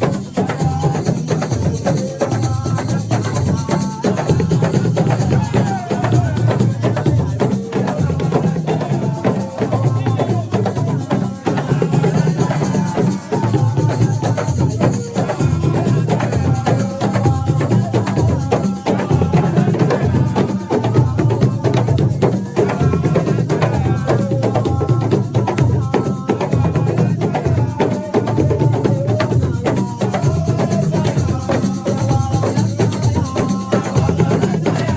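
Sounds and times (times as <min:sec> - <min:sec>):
fast clattering percussion: 0:00.0 - 0:34.9
hand drums: 0:00.0 - 0:34.9
voices singing: 0:00.0 - 0:34.9.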